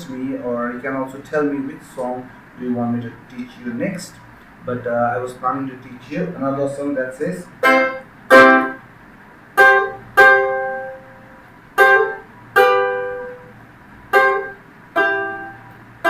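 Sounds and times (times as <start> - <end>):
ukulele strums: 7.6 - 8.8, 9.6 - 16.0.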